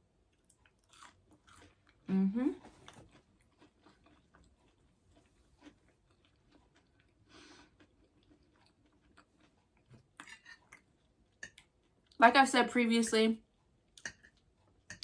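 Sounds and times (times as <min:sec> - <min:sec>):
person chewing: 0:00.3 - 0:12.2.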